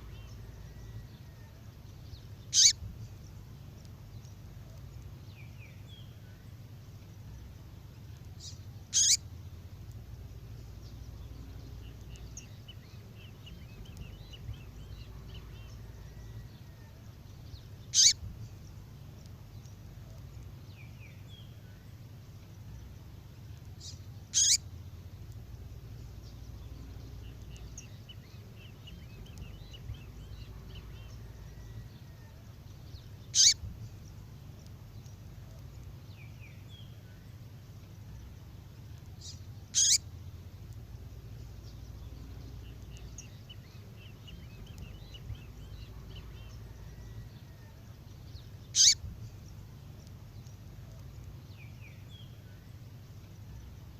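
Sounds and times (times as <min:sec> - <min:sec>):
faint twittering chirps: 0:00.0 - 0:53.9
steady low hum: 0:00.0 - 0:53.9
songbird sharp calls: 0:02.4 - 0:02.9, 0:08.4 - 0:09.2, 0:17.8 - 0:18.4, 0:23.8 - 0:24.7, 0:32.9 - 0:33.8, 0:39.2 - 0:40.1, 0:48.4 - 0:49.1.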